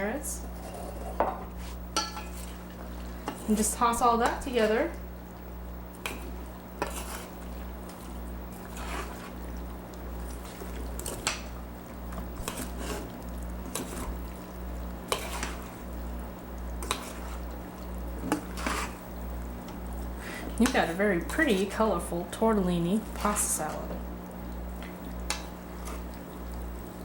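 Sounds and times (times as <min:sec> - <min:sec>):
utensils clinking and scraping bowl: 0:00.0 - 0:05.0, 0:06.0 - 0:09.5, 0:12.1 - 0:14.4, 0:15.1 - 0:15.9, 0:16.8 - 0:17.6, 0:18.2 - 0:24.0
low electrical hum: 0:00.0 - 0:27.0.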